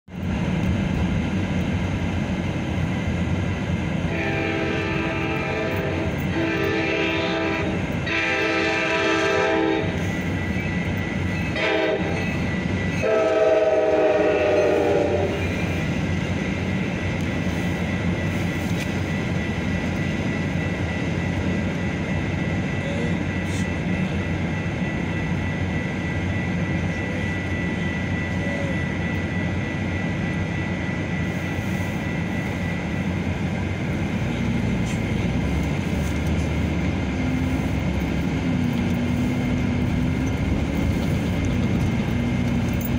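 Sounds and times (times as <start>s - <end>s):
train wheels rumbling on rails: 0.0s - 42.9s
train horn blasts: 4.1s - 10.2s, 11.5s - 15.7s.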